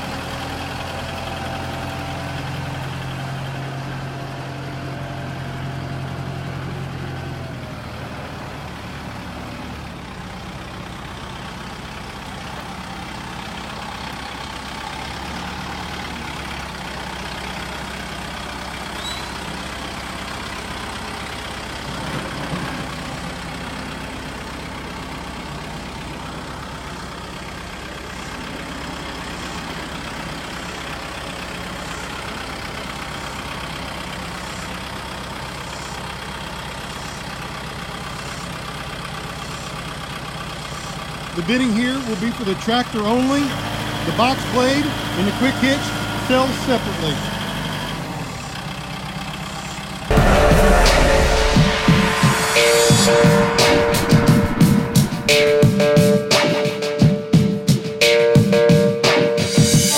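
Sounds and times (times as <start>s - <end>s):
tractor diesel engine running: 0.0s - 50.4s.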